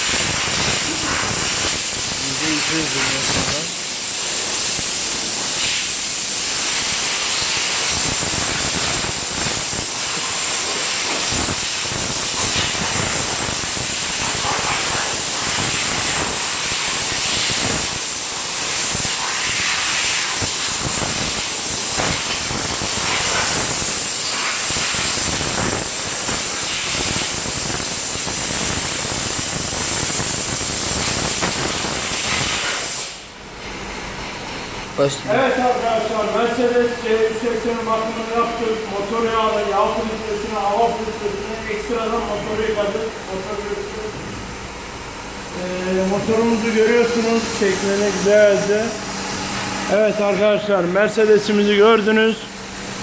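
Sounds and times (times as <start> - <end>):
pressure washer spray hissing: 0.0 - 33.3, 44.6 - 53.0.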